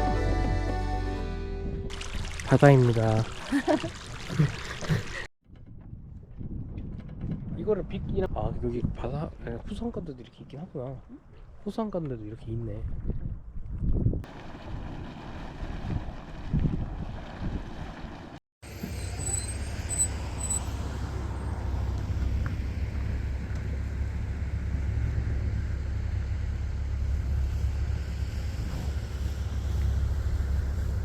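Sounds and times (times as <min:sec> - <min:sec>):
wind buffeting microphone: 0:05.5 - 0:10.2, 0:12.4 - 0:18.2
car driving on road: 0:17.1 - 0:31.0.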